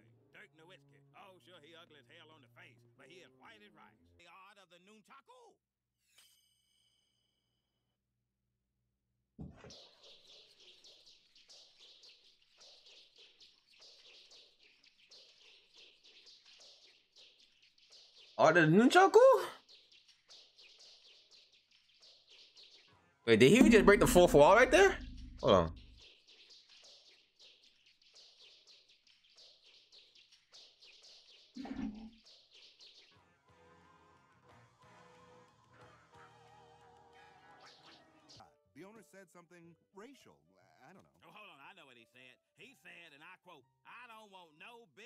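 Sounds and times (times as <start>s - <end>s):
music: 0.0s - 4.5s, 10.5s - 31.6s, 32.2s - 45.0s.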